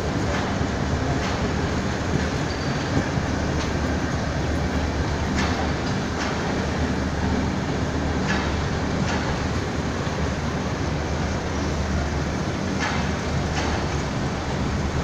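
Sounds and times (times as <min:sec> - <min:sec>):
train wheels rumbling on rail: 0:00.0 - 0:15.0
wheels clacking over rail joints: 0:05.2 - 0:06.8, 0:08.1 - 0:10.3.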